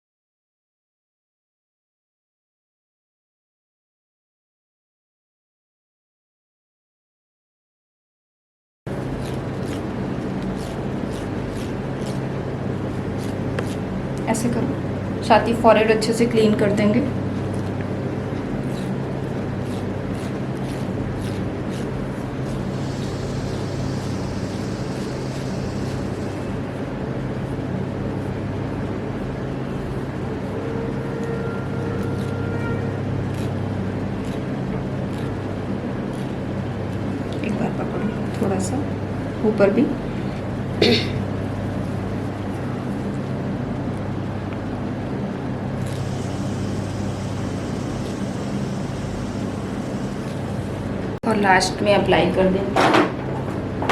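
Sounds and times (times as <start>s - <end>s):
low mechanical hum: 8.9s - 53.9s
faint hiss: 22.7s - 26.5s.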